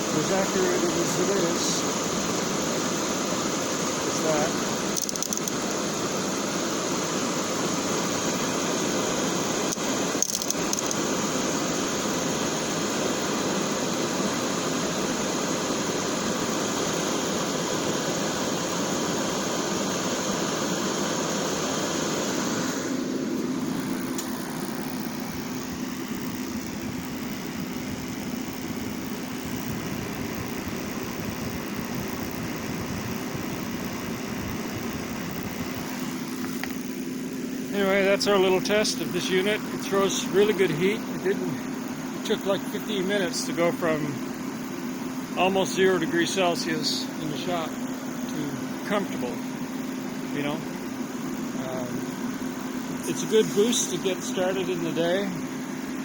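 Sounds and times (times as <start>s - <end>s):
heater burner and fan rushing: 0.0s - 56.0s
steady low hum: 0.0s - 56.0s
click: 5.0s - 5.6s, 9.7s - 11.0s, 24.1s - 24.3s.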